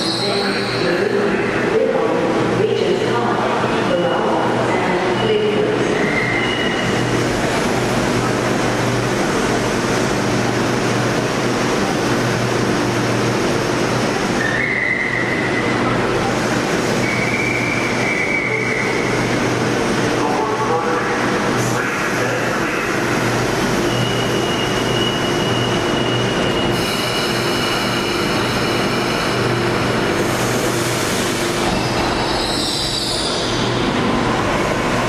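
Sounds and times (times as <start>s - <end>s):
train rumbling on track: 0.0s - 35.0s
high-pitched wheel squeals: 31.8s - 33.7s.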